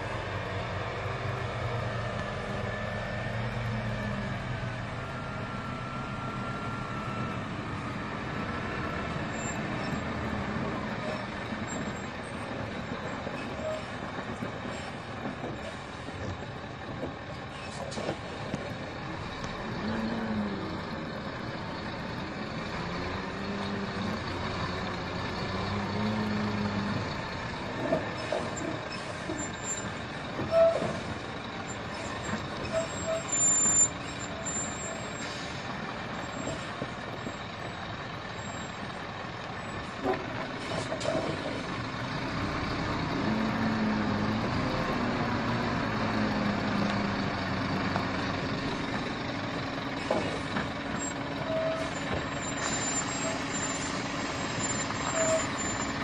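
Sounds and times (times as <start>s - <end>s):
diesel truck engine revving: 0.0s - 15.2s, 18.1s - 56.0s
short high squeal: 31.8s - 35.6s, 51.0s - 56.0s.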